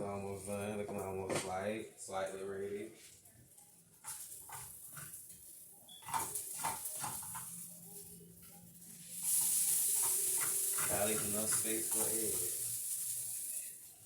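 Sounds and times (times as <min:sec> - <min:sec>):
rice sizzling in a pan: 0:03.0 - 0:14.0
utensil knocking and scraping: 0:10.0 - 0:12.5.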